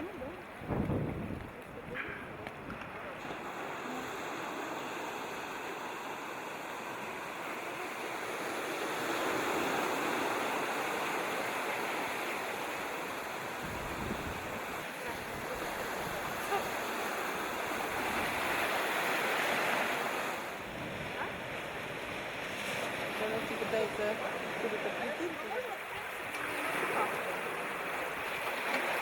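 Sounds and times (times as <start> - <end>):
wind rumble on microphone: 0.0 - 3.3, 13.5 - 16.8, 20.6 - 23.4
sea waves washing on shore: 0.0 - 29.0.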